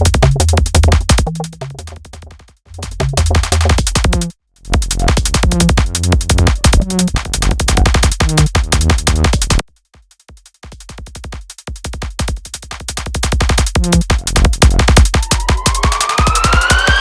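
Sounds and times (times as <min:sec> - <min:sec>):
electronic dance music: 0:00.0 - 0:02.0, 0:02.8 - 0:09.6, 0:13.5 - 0:17.0.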